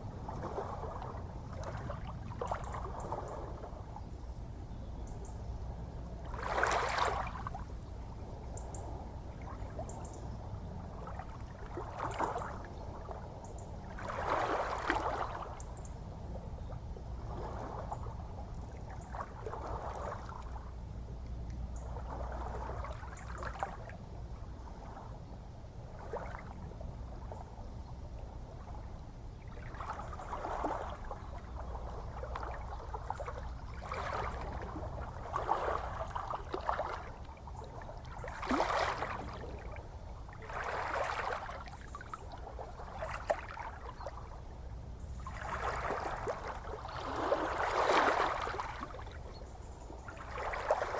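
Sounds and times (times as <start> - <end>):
low rumble of the sea: 0.0 - 50.9
ocean waves lapping: 6.2 - 7.8, 13.9 - 15.6, 29.6 - 44.4, 45.2 - 50.9.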